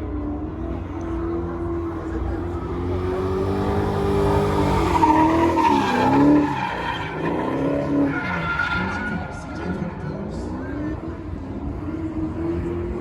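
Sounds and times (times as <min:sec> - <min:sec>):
tires squealing: 0:01.9 - 0:12.0
car engine revving hard: 0:02.3 - 0:13.0.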